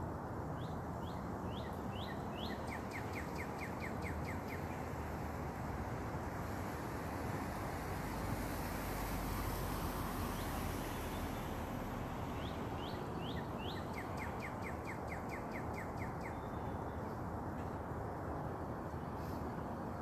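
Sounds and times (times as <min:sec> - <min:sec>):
songbird singing: 0:00.5 - 0:05.3, 0:09.5 - 0:17.8.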